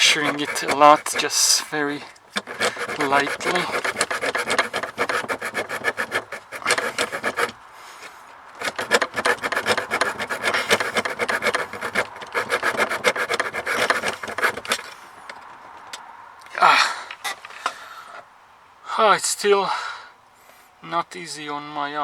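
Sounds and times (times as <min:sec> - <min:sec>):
hand saw rasping: 0:00.0 - 0:15.0.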